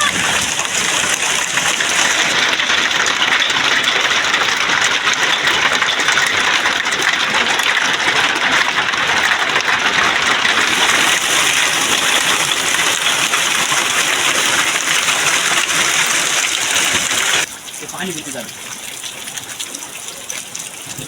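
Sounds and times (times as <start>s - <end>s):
rushing water hiss: 0.0s - 4.4s, 10.5s - 21.0s.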